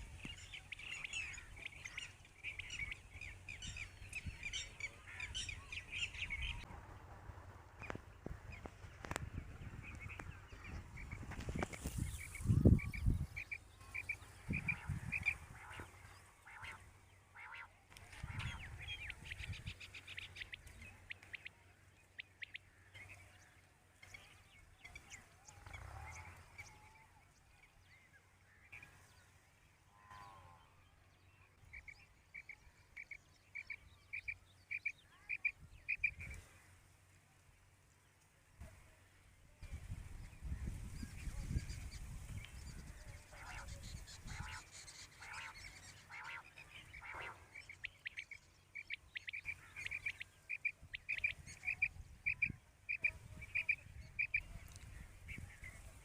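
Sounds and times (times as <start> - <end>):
quail calling: 12.8 - 19.4, 43.0 - 54.6.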